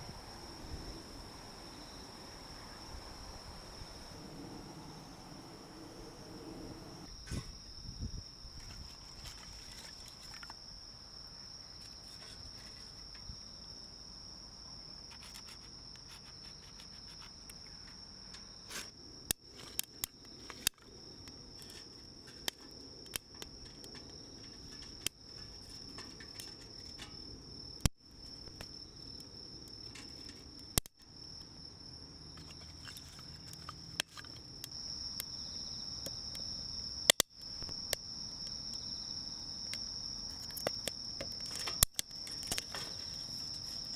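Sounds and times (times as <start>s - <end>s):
crickets trilling: 0.0s - 43.9s
sharp clicks and snaps: 30.7s - 31.1s, 37.1s - 38.0s, 40.4s - 42.7s.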